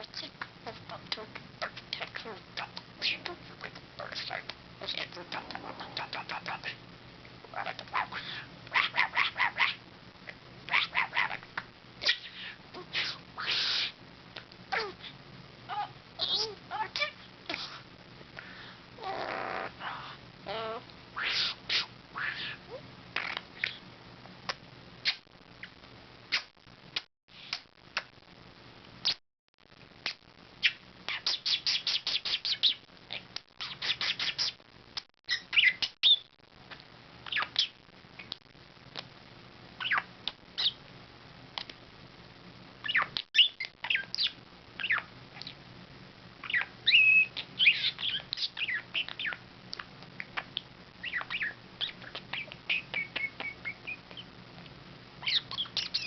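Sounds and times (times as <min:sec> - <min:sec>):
budgerigar chattering: 0:46.5 - 0:49.4, 0:50.4 - 0:54.3, 0:55.2 - 0:56.0.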